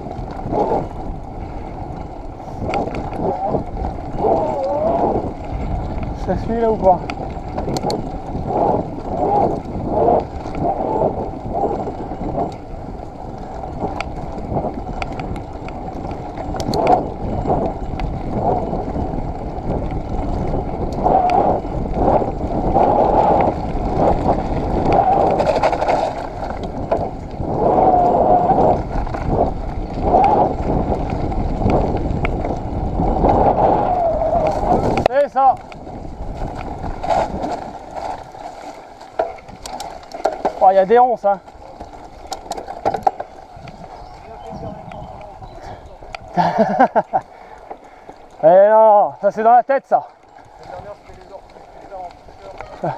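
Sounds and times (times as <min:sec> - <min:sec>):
bike tyres rumbling and rattling: 0:00.0 - 0:52.9
wind on microphone: 0:00.0 - 0:52.9.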